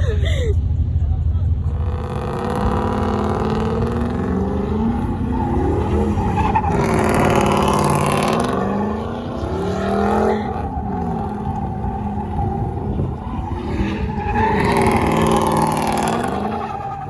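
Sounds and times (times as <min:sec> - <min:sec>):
truck engine revving: 0:01.4 - 0:17.0
tire squeal: 0:01.7 - 0:17.0.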